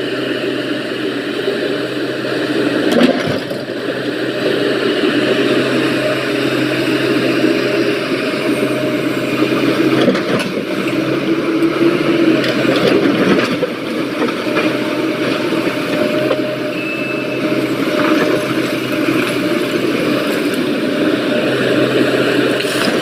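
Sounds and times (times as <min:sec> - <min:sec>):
diesel construction machinery running: 0:00.0 - 0:23.0.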